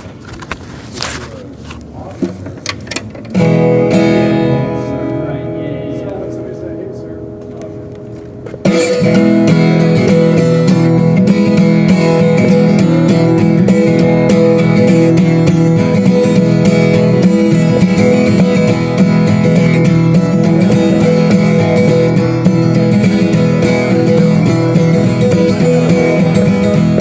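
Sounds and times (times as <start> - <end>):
acoustic guitar strumming: 2.1 - 27.0.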